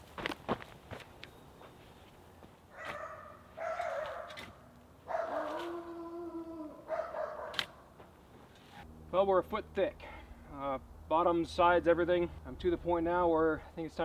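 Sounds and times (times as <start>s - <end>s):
dog barking and howling: 2.8s - 7.8s.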